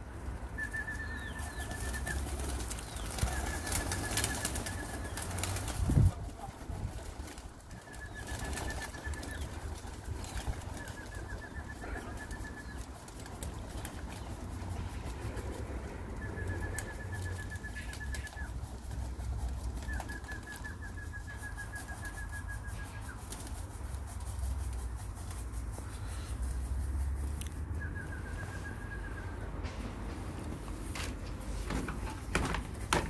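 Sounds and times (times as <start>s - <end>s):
bird's rapid high trill: 0.6s - 5.6s
pigeon wings flapping: 0.6s - 26.9s, 30.8s - 33.0s
wind rumble on microphone: 5.7s - 7.1s.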